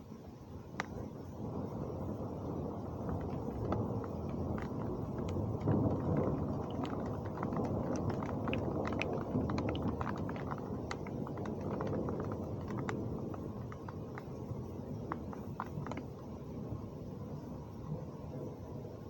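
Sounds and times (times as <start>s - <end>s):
heavy rain falling: 0.8s - 18.5s
sharp drips and splashes: 2.2s - 16.8s.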